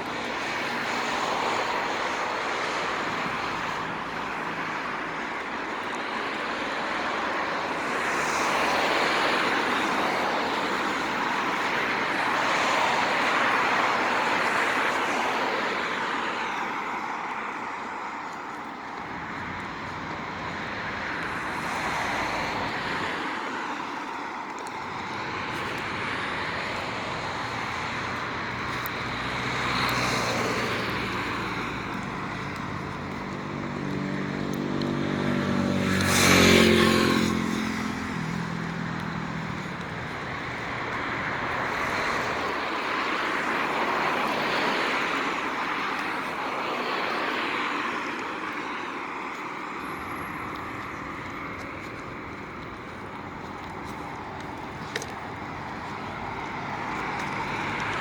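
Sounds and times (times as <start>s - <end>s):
passing cars: 0.0s - 58.0s
vehicle passing close: 25.0s - 46.1s.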